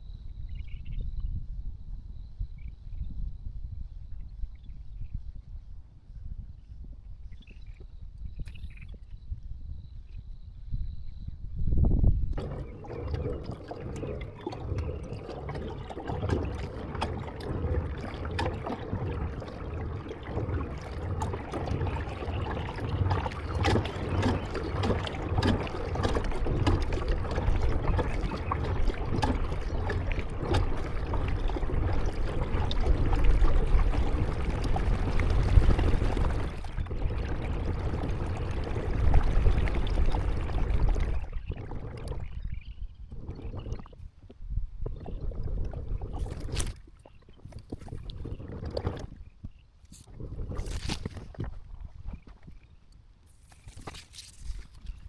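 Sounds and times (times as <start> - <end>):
paddle blades splashing: 12.4 - 41.5
water dripping: 12.4 - 44.1, 44.9 - 55.0.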